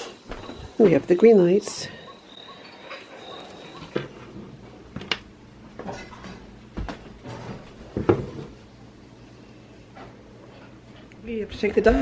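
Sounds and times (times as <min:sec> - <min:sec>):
household knocks and clunks: 0:05.8 - 0:08.6.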